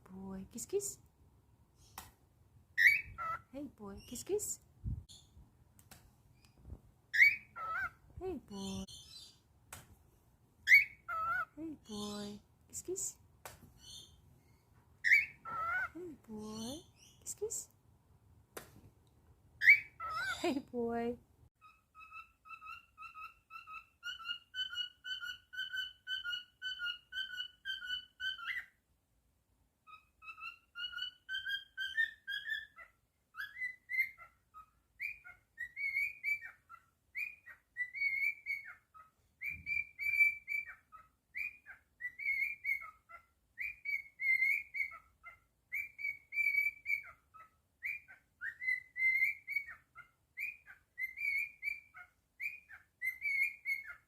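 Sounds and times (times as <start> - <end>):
cockatiel whistling: 7.2 - 7.9, 35.0 - 38.8, 39.4 - 45.0, 45.7 - 47.2, 47.8 - 54.0.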